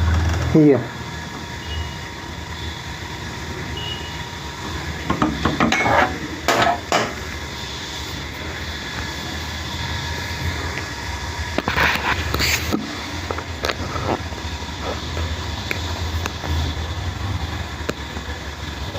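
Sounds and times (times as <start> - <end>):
steady low hum: 0.0 - 18.9
metal tools clinking: 5.6 - 7.1.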